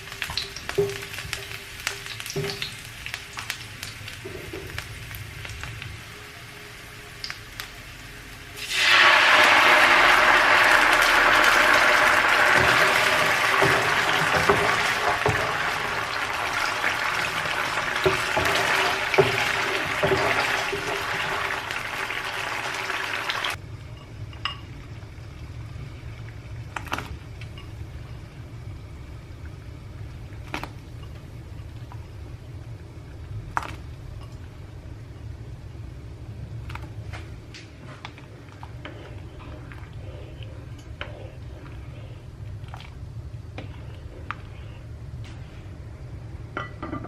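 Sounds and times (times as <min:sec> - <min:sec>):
water running from a tap: 0:08.6 - 0:23.6
things knocking against sink: 0:12.4 - 0:15.9, 0:17.8 - 0:21.0.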